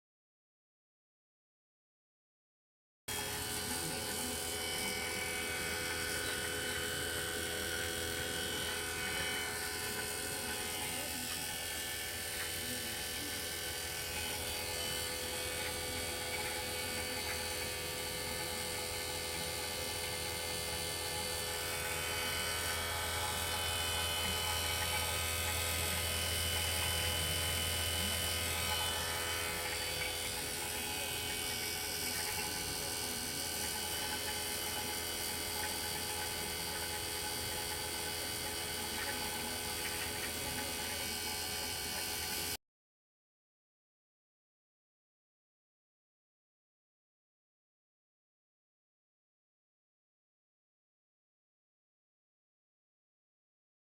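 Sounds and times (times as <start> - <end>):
motor machine humming: 3.1 - 42.6.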